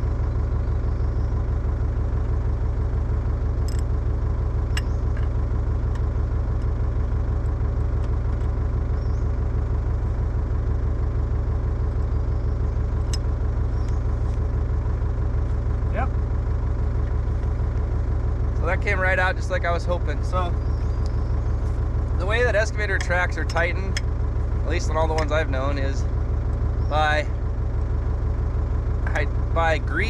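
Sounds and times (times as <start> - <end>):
excavator engine idling: 0.0 - 30.0.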